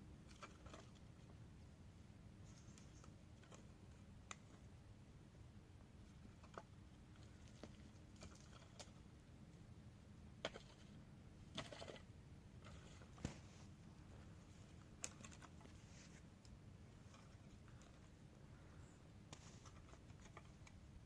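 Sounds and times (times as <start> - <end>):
faint clicks and taps: 19.3 - 20.9.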